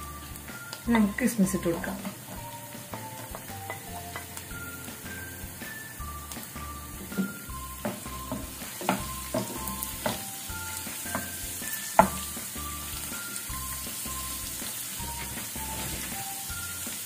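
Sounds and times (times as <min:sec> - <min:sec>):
nuts sizzling in hot fat: 0:00.0 - 0:17.0
wooden spatula knocking on pan: 0:03.2 - 0:04.4, 0:07.0 - 0:10.3, 0:10.9 - 0:12.4.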